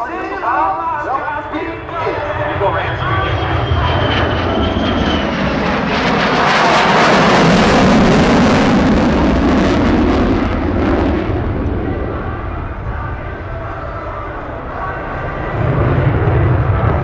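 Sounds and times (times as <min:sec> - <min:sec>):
jet fighter flying past: 0:00.2 - 0:17.0.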